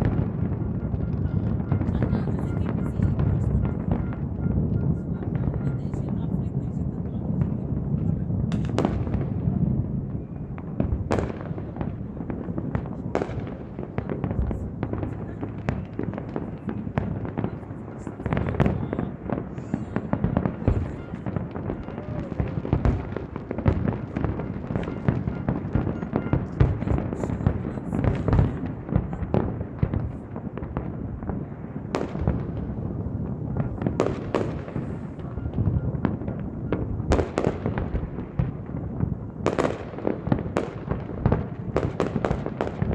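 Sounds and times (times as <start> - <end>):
fireworks bangs and crackling: 0.0 - 42.9
loud fireworks booms: 0.0 - 42.9.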